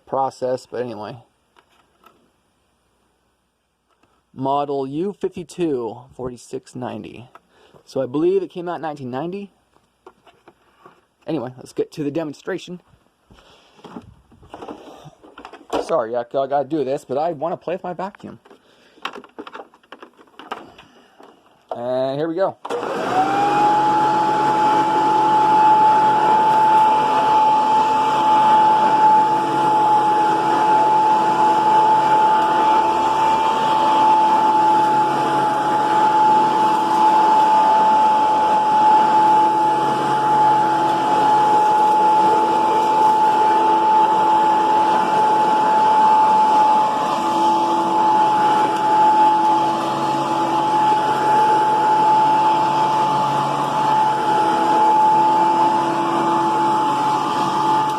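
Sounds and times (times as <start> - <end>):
vacuum cleaner motor whine: 22.6 - 57.9.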